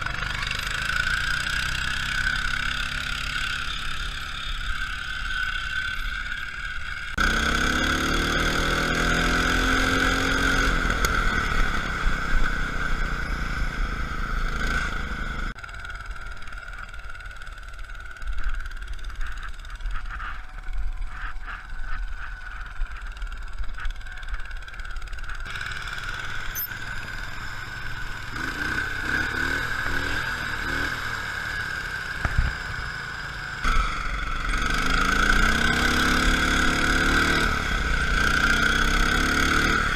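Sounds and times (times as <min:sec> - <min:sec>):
lawn tractor engine revving: 0:00.0 - 0:20.2, 0:23.0 - 0:39.9.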